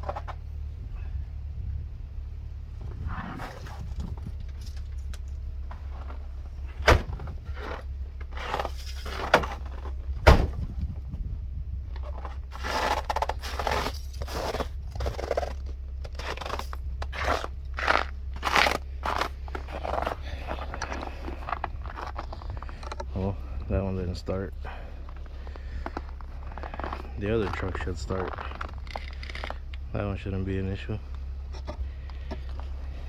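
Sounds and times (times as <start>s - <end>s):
crunching footsteps: 12.0s - 33.0s.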